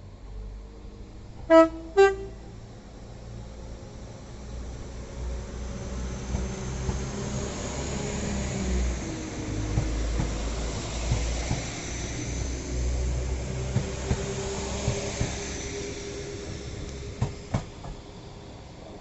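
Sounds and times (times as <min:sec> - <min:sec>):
train rumbling: 0:00.0 - 0:19.0
train horn blasts: 0:01.5 - 0:02.6.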